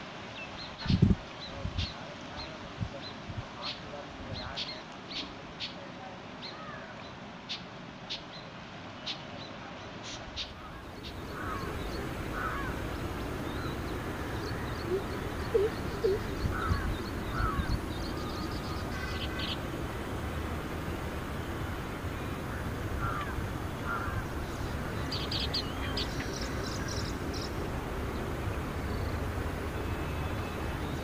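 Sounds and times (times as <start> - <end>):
background hiss: 0.0 - 31.0
birds chirping: 10.4 - 31.0
harsh bird calls: 10.4 - 31.0.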